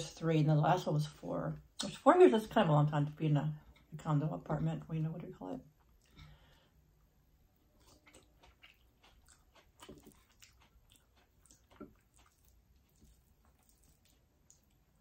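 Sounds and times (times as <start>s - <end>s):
faint chewing with mouth clicks: 5.6s - 15.0s.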